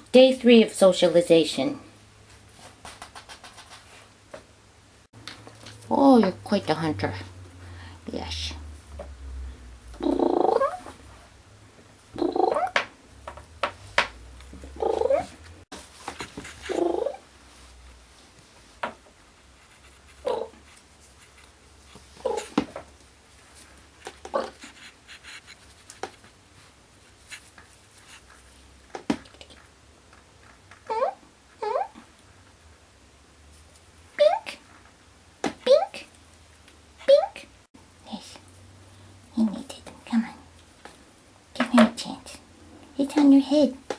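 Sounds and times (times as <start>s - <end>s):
kittens' claws scratching and tapping: 2.4s - 4.1s, 18.9s - 26.4s
kitten purring: 9.9s - 11.0s, 12.1s - 12.7s, 14.6s - 15.4s, 16.5s - 17.2s, 22.2s - 22.6s.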